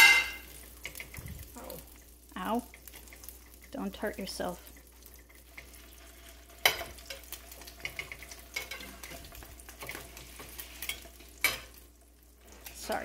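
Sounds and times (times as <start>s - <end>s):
bread sizzling in butter: 0.0s - 13.0s.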